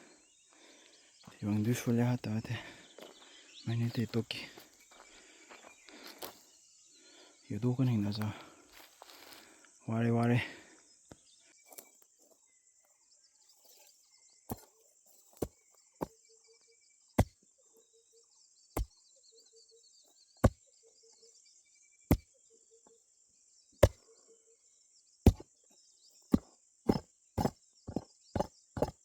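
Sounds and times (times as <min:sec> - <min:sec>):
digging tool striking soil: 0:17.2 - 0:17.4, 0:20.4 - 0:20.6, 0:22.1 - 0:22.3, 0:23.8 - 0:24.0, 0:25.3 - 0:25.5, 0:26.3 - 0:29.0.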